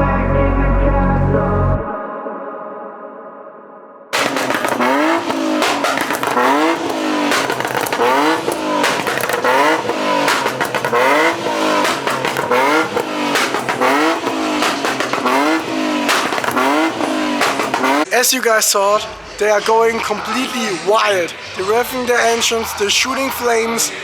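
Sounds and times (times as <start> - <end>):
exhaust pops and bangs: 4.2 - 22.6
car engines revving: 4.2 - 24.0.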